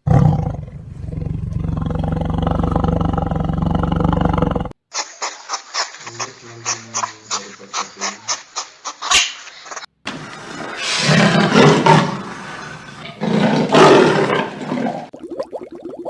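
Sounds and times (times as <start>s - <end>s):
large animal rough calls: 0.0s - 4.8s, 10.6s - 15.1s.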